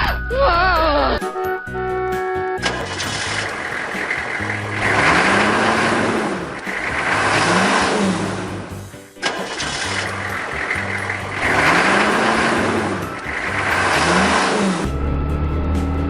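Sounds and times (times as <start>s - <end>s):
music: 0.0s - 5.0s, 8.6s - 11.8s, 12.6s - 16.0s
engine-like sound rising and falling: 2.6s - 16.0s.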